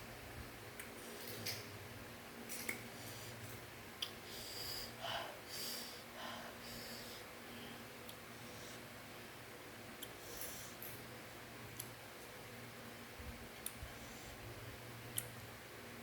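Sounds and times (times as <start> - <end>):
steady low hum: 0.0 - 16.0
person sniffing and breathing hard: 4.2 - 7.8.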